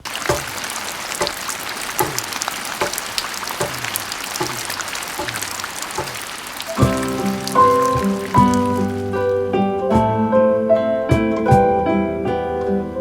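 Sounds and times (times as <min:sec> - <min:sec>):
rain hiss: 0:00.0 - 0:09.5
low rhythmic thuds: 0:00.0 - 0:10.2.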